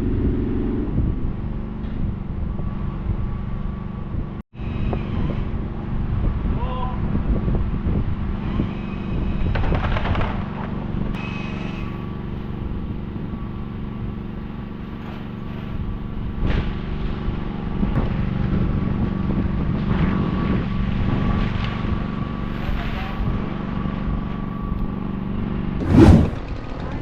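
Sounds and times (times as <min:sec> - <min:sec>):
engine running steadily: 0:10.6 - 0:27.0.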